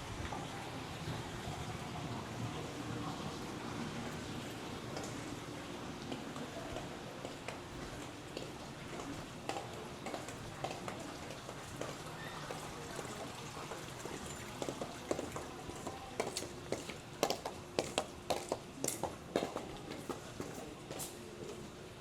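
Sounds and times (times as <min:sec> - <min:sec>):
footsteps clacking on pavement: 0:06.1 - 0:21.2.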